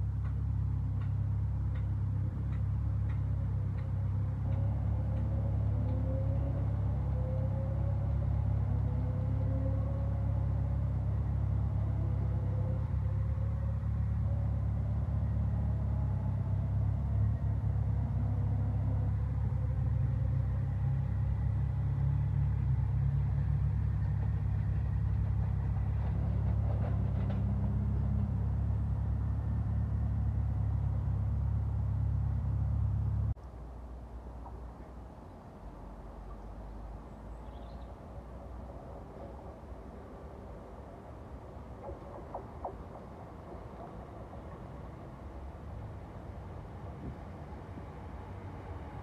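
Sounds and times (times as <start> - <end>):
train low rumble: 0.0 - 49.0.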